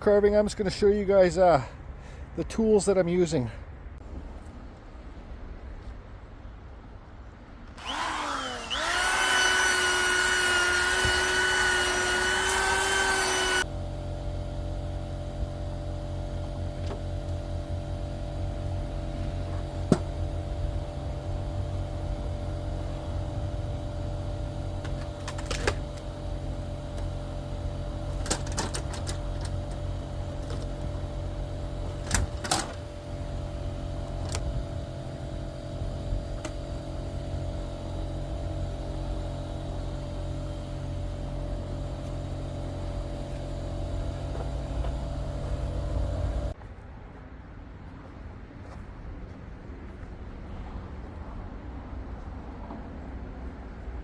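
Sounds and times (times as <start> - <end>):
low motor hum: 7.6 - 46.6
rotary tool high whine: 7.8 - 28.0.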